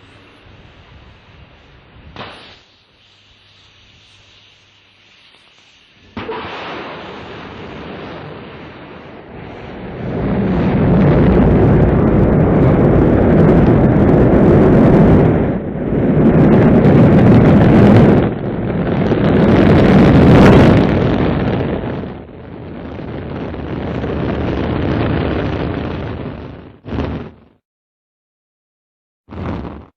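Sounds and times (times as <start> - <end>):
rocket engines roaring: 6.0 - 27.5.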